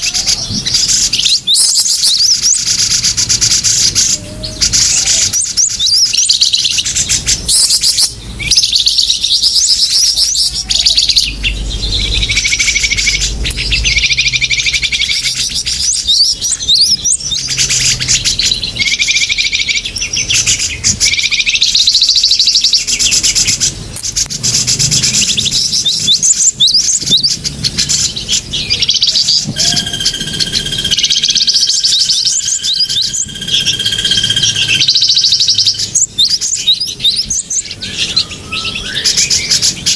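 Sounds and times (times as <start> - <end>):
small birds chirping: 0.0 - 39.9
steady high tone: 28.6 - 36.2.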